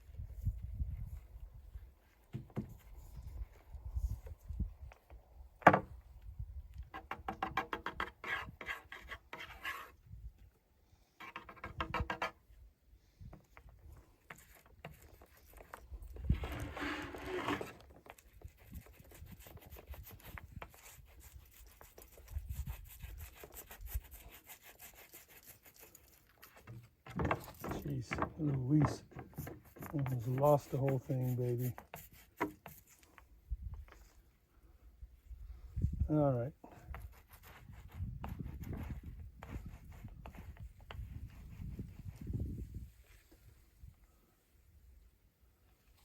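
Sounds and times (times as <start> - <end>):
rubbing and scraping on drum shell: 14.4 - 33.0.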